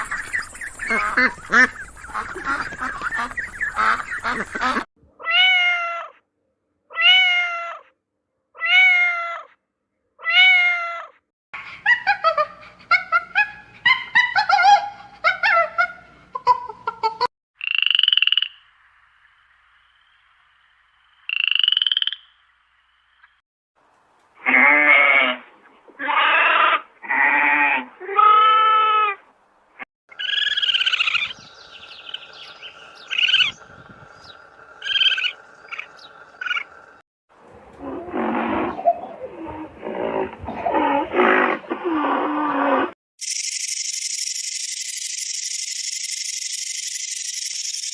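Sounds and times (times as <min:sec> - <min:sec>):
animal calls: 0:30.1 - 0:36.8.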